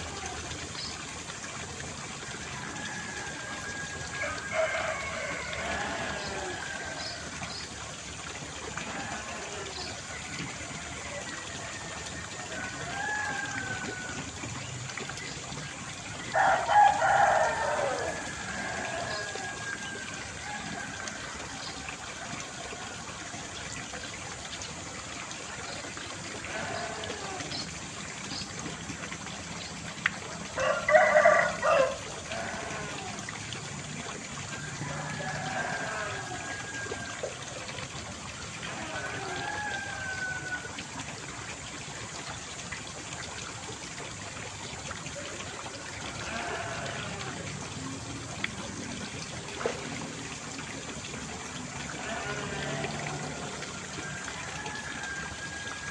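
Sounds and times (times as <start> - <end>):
trickling water: 0.0 - 55.9
rooster crowing: 2.6 - 6.9, 16.4 - 20.0, 30.6 - 32.0, 39.0 - 40.7, 54.0 - 55.9.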